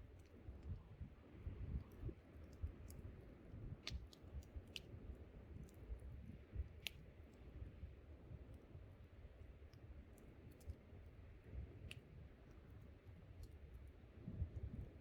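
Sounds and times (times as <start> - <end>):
low rumble of wind: 0.0 - 15.0
campfire crackling and popping: 3.8 - 6.0.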